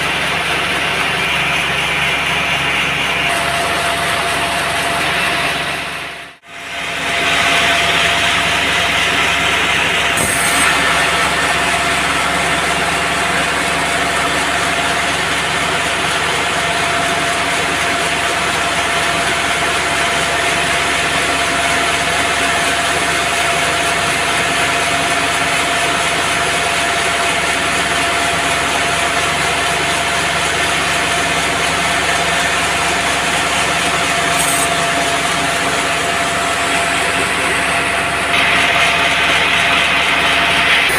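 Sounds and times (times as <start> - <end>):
band saw cutting log: 6.9 - 14.9, 33.7 - 38.4.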